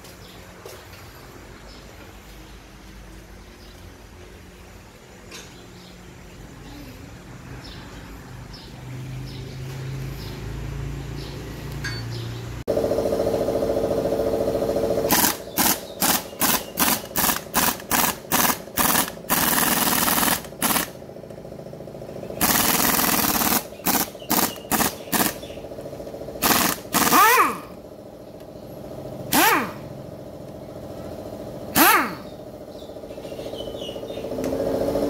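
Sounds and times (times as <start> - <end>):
machine running: 12.7 - 27.8.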